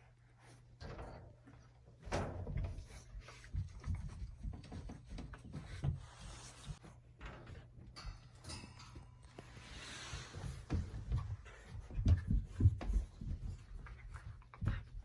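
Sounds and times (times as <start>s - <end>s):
rustling: 0.0s - 15.0s
knocks and thumps: 10.4s - 15.0s.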